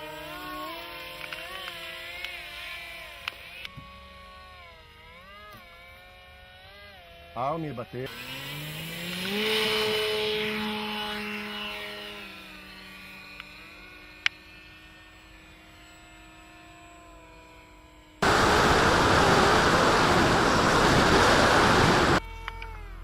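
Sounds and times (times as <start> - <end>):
model plane propeller drone: 0.0 - 23.0
loud steady rush of noise: 18.2 - 22.2.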